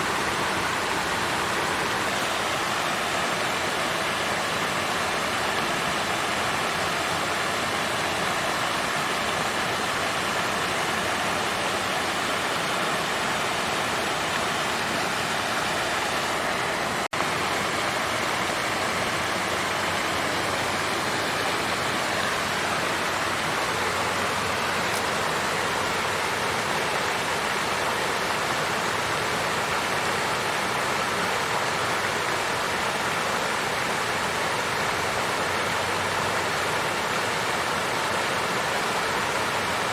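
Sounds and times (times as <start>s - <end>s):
water fountain flowing: 0.0s - 39.9s.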